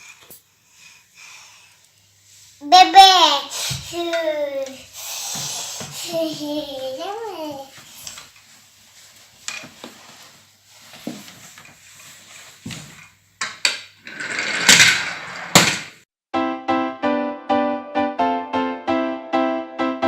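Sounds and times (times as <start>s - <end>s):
rustling scrape: 5.1s - 13.1s
toy cars clacking: 13.4s - 16.0s.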